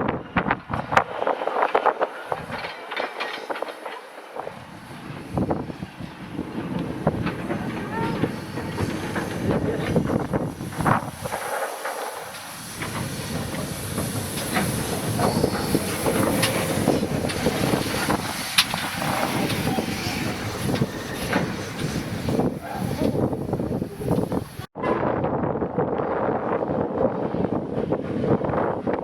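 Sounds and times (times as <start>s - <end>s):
train wheels rumbling: 0.0s - 24.7s
clicks and clanks from track: 0.3s - 23.2s.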